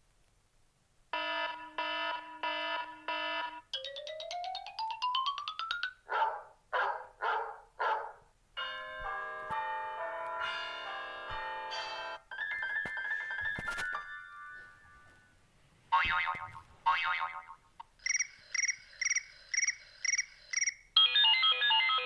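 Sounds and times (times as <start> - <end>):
phone ringtones: 18.0 - 22.0.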